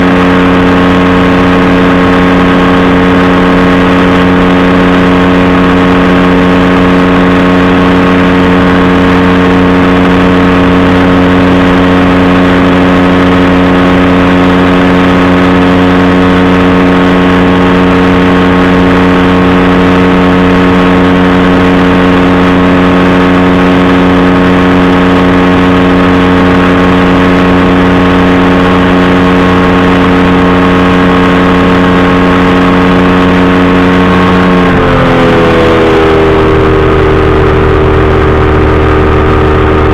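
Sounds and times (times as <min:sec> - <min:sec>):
engine and propeller running: 0:00.0 - 0:39.9.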